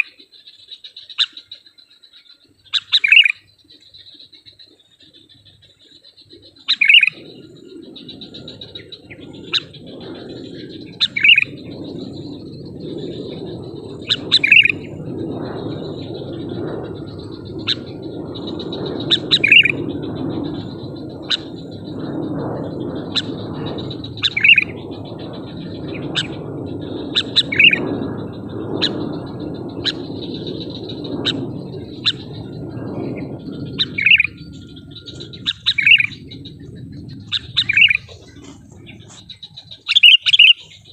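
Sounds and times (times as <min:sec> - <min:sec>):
bird chirping: 0:00.0 - 0:40.9
low rushing noise: 0:07.0 - 0:40.5
high pulsing hum: 0:07.1 - 0:39.9.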